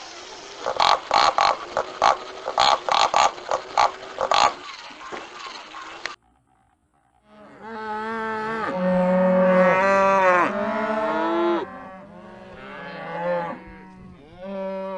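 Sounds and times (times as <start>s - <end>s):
cattle mooing: 7.2s - 14.9s.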